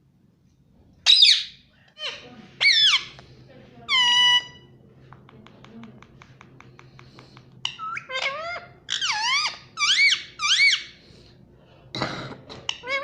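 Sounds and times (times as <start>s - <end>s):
parakeet squeaky calls: 1.0s - 3.2s, 3.9s - 4.7s, 7.6s - 11.0s.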